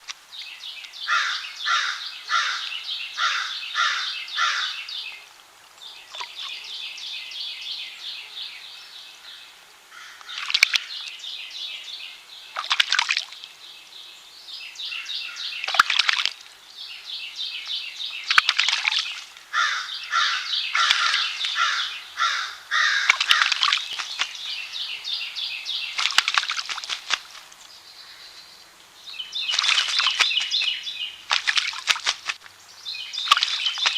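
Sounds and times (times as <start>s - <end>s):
crow cawing: 1.1s - 4.8s, 9.9s - 10.8s, 19.5s - 23.6s
water splashing: 5.3s - 6.7s, 10.2s - 11.1s, 12.5s - 13.5s, 15.6s - 16.6s, 18.2s - 19.6s, 20.7s - 27.8s, 29.2s - 33.9s.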